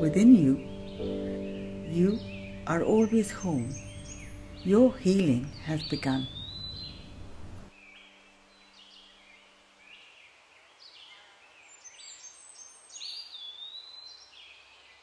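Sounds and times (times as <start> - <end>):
birds chirping and whistling: 0.0 - 7.7
faint outdoor hiss: 0.0 - 15.0.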